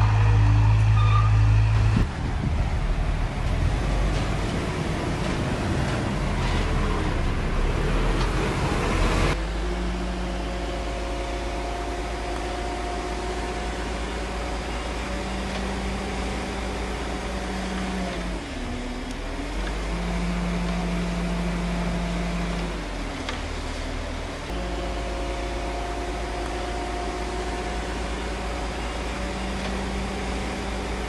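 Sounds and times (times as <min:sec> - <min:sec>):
loud rushing noise: 0:00.0 - 0:09.5
heavy machinery diesel engine: 0:00.0 - 0:31.0.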